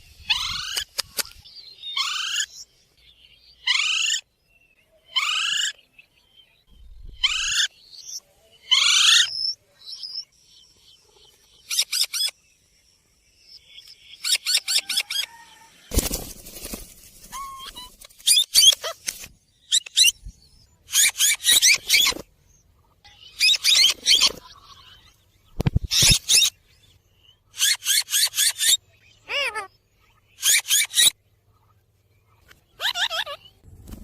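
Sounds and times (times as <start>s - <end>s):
parrot high sweeping calls: 32.8s - 33.4s.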